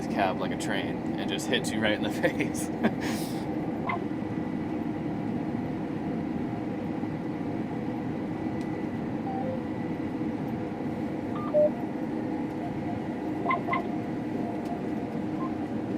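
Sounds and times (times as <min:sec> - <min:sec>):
combine harvester drone: 0:00.0 - 0:15.9
thin steady whine: 0:00.0 - 0:15.9
short electronic beeps: 0:09.3 - 0:09.7, 0:11.3 - 0:11.9, 0:12.5 - 0:15.7.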